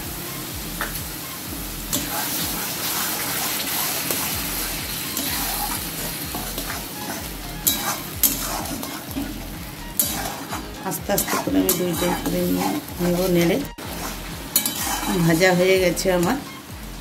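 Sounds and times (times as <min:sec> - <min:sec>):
paste sizzling in a pan: 0:00.0 - 0:17.0
metal spatula stirring and scraping: 0:01.8 - 0:16.7
spatula clinking against pan: 0:06.6 - 0:09.2, 0:14.5 - 0:15.2.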